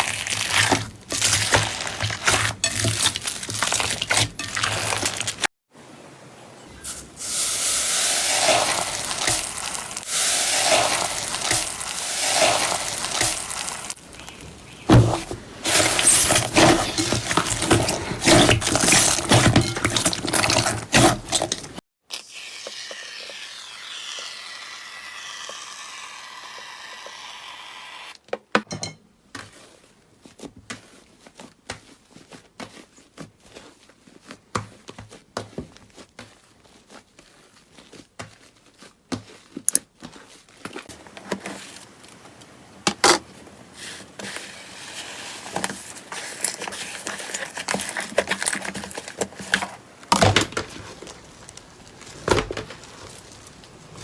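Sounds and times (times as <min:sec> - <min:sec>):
slime squishing: 0:00.0 - 0:05.5, 0:08.1 - 0:21.8, 0:43.8 - 0:54.0.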